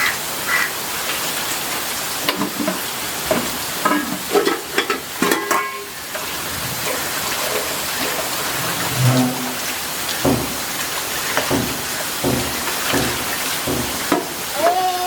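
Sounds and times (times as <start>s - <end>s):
rain hiss: 0.0s - 15.0s
sharp knocks and clattering: 2.3s - 6.3s, 6.9s - 14.5s.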